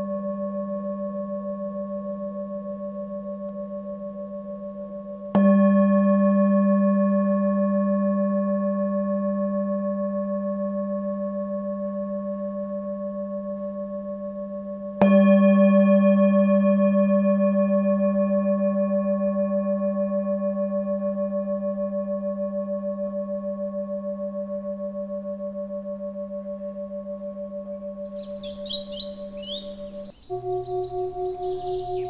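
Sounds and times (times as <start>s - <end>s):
singing bowl ringing: 15.0s - 22.5s, 24.0s - 32.0s.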